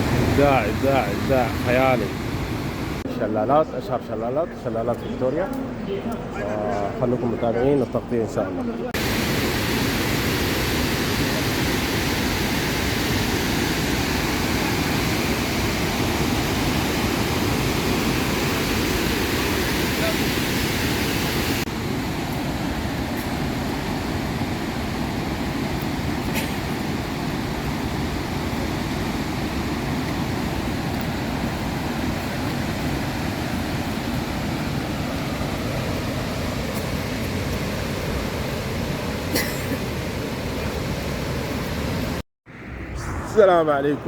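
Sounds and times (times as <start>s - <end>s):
waterfall rushing: 0.0s - 3.0s, 9.0s - 25.2s.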